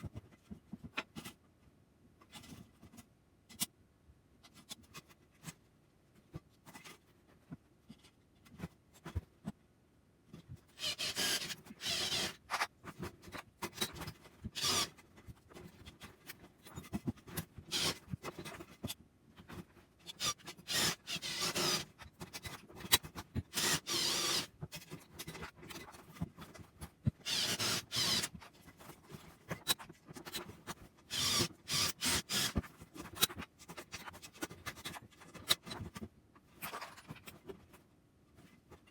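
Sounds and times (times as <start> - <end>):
file scraping material: 10.7 - 18.8, 20.1 - 36.0.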